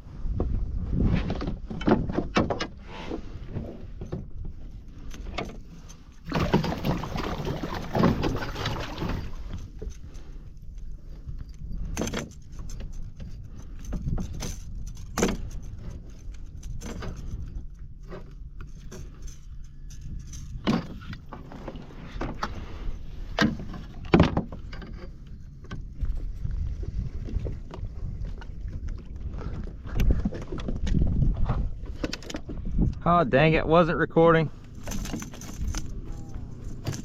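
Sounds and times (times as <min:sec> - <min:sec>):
low steady rumble: 0:00.0 - 0:37.0
gear knocking and rattling: 0:04.0 - 0:22.5, 0:34.5 - 0:37.0.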